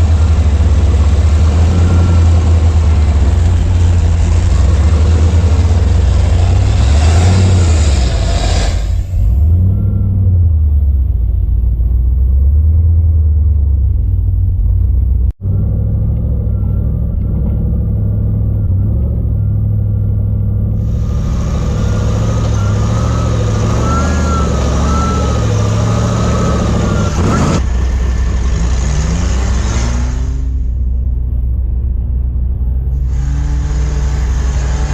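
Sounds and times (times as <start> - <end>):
buggy engine rumbling: 0.0 - 34.9
broad hiss: 20.8 - 23.0.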